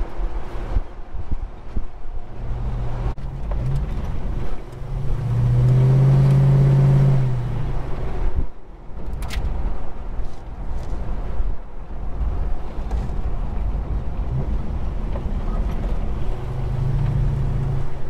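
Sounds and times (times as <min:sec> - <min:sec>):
car engine drone from inside cabin: 0:00.0 - 0:18.0.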